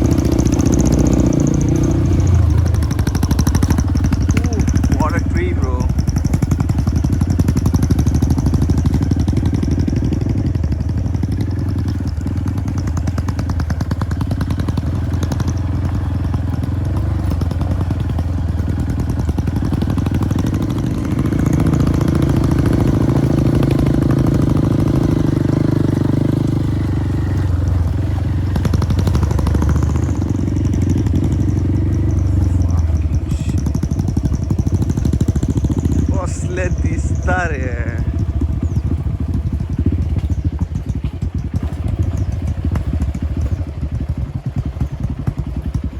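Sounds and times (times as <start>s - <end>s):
motorbike engine running: 0.0s - 45.9s.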